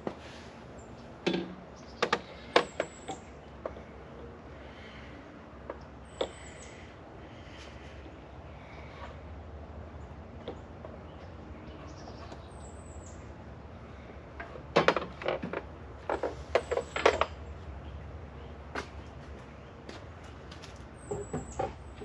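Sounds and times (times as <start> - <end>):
steady low hum: 0.0 - 22.0
handling clicks knocks and rustles: 14.4 - 17.4, 18.7 - 22.0.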